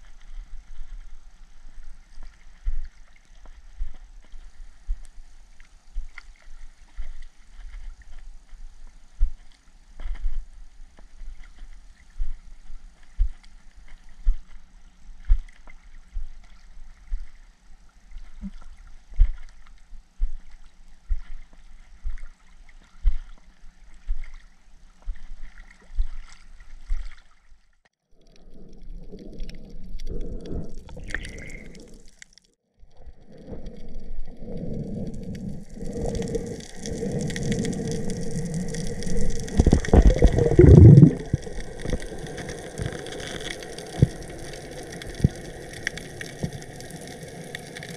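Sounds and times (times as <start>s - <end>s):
water sloshing and gurgling: 0.0s - 47.9s
soft low thumps: 39.5s - 42.0s.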